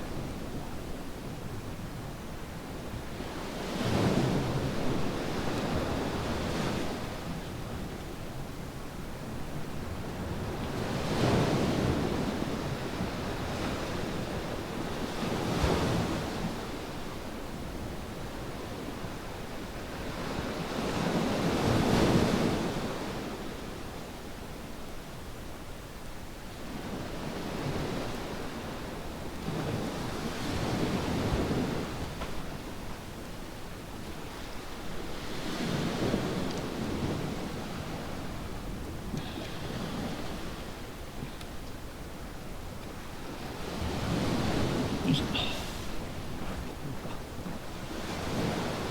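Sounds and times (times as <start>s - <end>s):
waves breaking: 34.4s - 41.4s, 42.3s - 48.9s.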